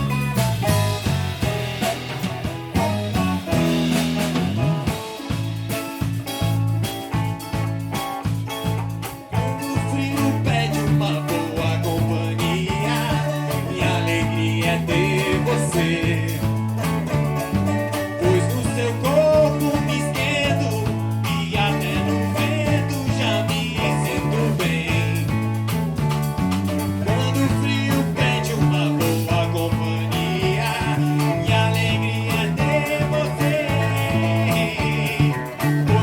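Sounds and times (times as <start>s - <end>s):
drum kit: 0.0s - 36.0s
electric bass line: 0.0s - 36.0s
guitar: 0.0s - 36.0s
person singing: 9.3s - 36.0s.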